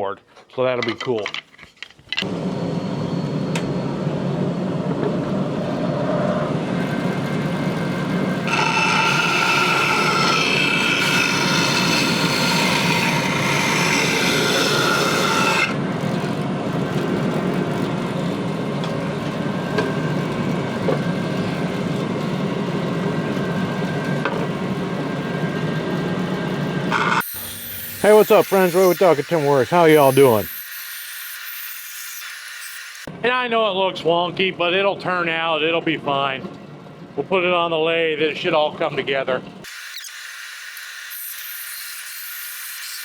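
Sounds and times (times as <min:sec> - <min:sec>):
bandsaw running: 0:06.8 - 0:15.8, 0:26.9 - 0:33.1, 0:39.6 - 0:43.0
saw blade cutting wood: 0:08.4 - 0:15.8, 0:26.9 - 0:33.1, 0:39.6 - 0:43.0.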